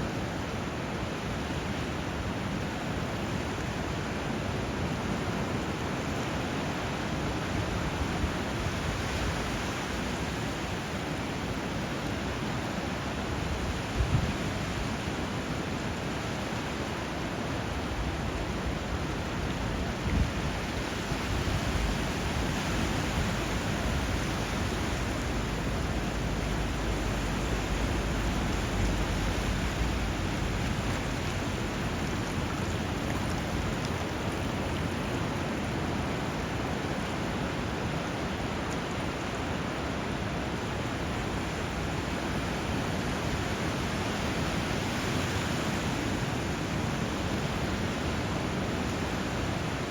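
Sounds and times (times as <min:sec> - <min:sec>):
rushing river water and surf: 0:00.0 - 0:49.9
low rumble: 0:23.3 - 0:32.5.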